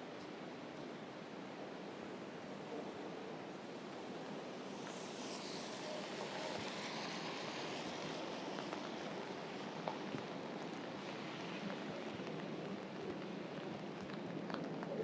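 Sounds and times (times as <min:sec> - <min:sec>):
steady rain hiss: 0:00.3 - 0:15.0.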